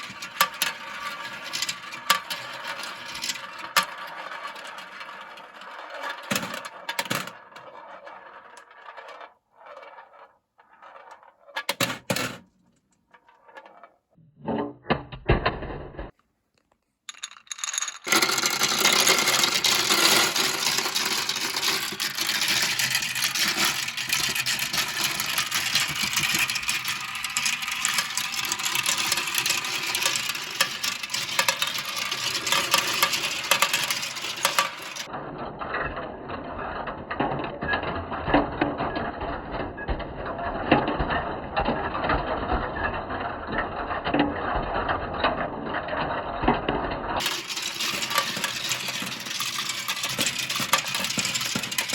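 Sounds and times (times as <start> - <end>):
marbles clattering down plastic run: 0.0 - 12.4, 17.1 - 35.1, 46.3 - 51.9.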